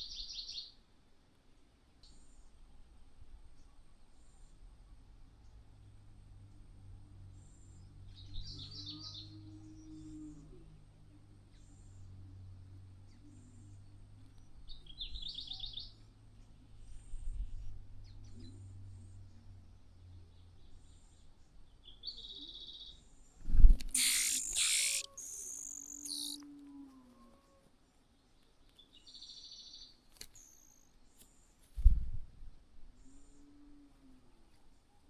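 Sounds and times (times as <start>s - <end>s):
small birds chirping: 23.8s - 26.5s, 28.4s - 31.3s.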